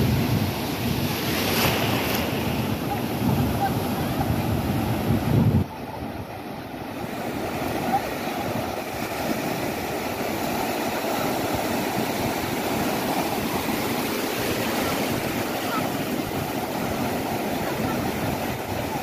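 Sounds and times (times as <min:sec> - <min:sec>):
waves breaking on beach: 0:00.0 - 0:19.0.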